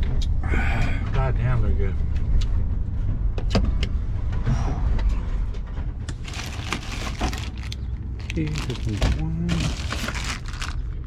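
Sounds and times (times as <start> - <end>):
vehicle road rumble: 0.0 - 11.0
rustling: 6.1 - 10.9.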